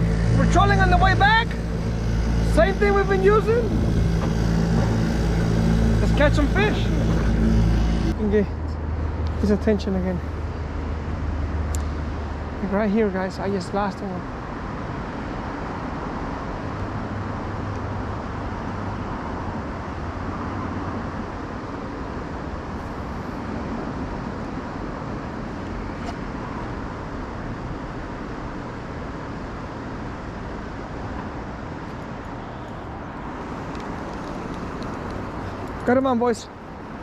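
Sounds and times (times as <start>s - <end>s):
boat motor running: 0.0s - 10.6s, 31.8s - 37.0s.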